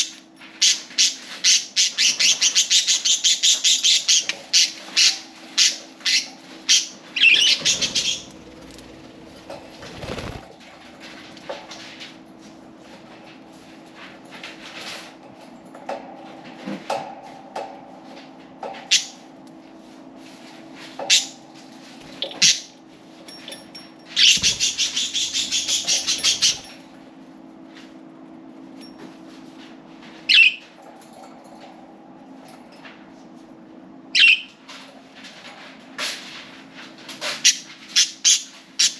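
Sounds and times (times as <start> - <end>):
budgerigars chirping: 1.5 - 8.5, 24.2 - 26.7
steady low hum: 4.4 - 34.2.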